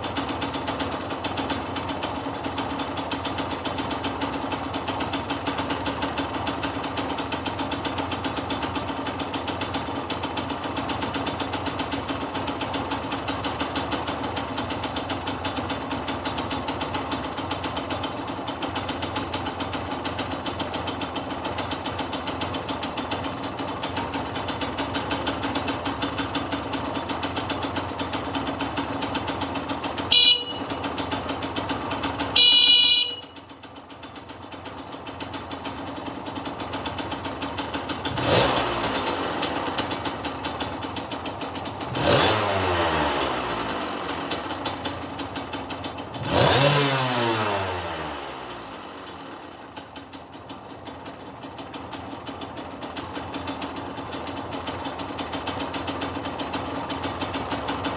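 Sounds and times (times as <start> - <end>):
motorcycle engine idling: 0.0 - 57.9
motorcycle horn beeping: 29.9 - 33.7.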